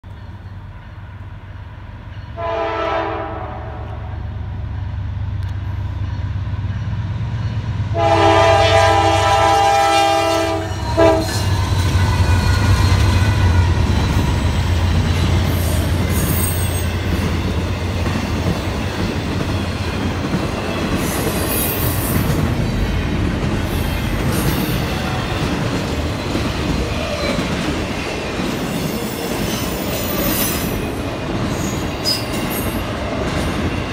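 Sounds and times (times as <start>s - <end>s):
freight train wheels rumbling: 0.0s - 33.9s
locomotive air horn blasts: 2.4s - 4.2s, 7.9s - 11.5s.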